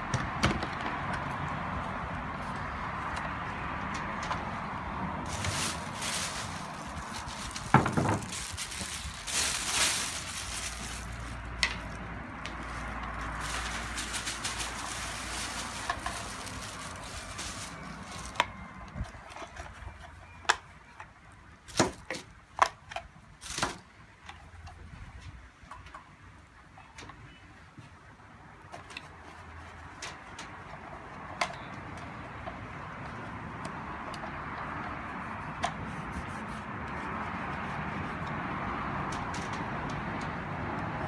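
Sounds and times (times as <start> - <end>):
plastic parts clicking and knocking: 7.3 - 8.5.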